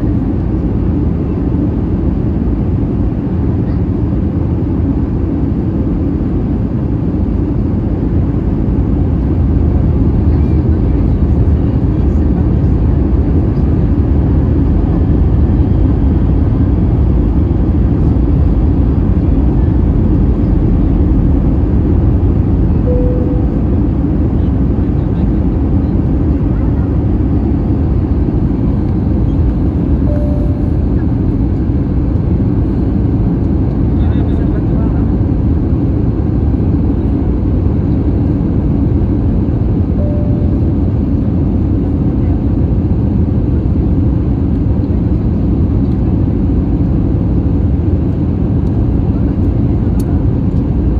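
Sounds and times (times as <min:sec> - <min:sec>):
airplane cabin engine rumble: 0:00.0 - 0:50.9
faint tone: 0:17.1 - 0:26.6, 0:28.6 - 0:31.4, 0:40.0 - 0:41.5
short single tone: 0:22.7 - 0:25.1, 0:29.8 - 0:31.1, 0:40.0 - 0:41.2.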